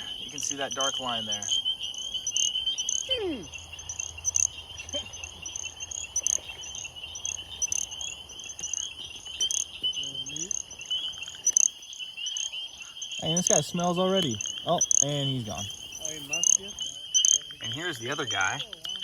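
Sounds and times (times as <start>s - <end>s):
frogs and insects trilling: 0.0s - 19.0s.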